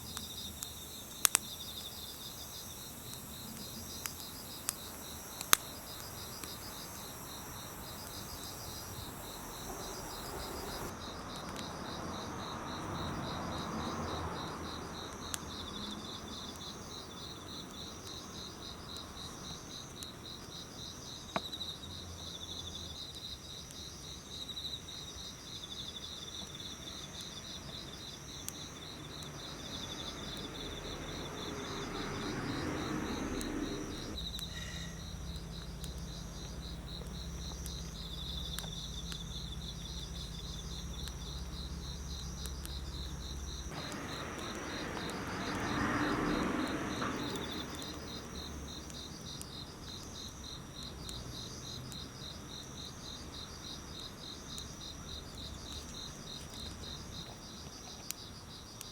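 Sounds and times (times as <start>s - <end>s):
crickets chirping: 0.0s - 58.9s
broad rushing noise: 43.7s - 48.0s.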